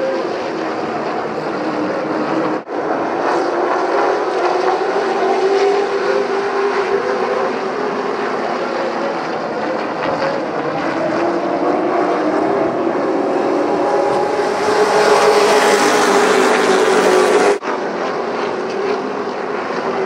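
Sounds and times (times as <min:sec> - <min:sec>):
racing truck engines droning: 0:00.0 - 0:20.0.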